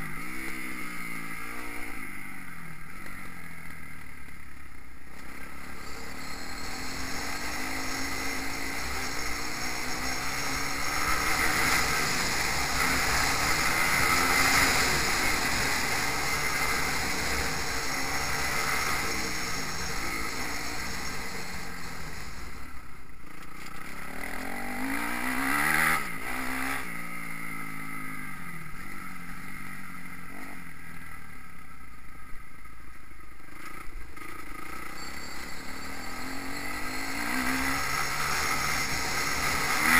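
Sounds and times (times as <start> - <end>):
bike passing close: 0.0 - 30.8, 33.4 - 39.9
motocross bike engines revving: 0.0 - 31.3, 33.5 - 39.9.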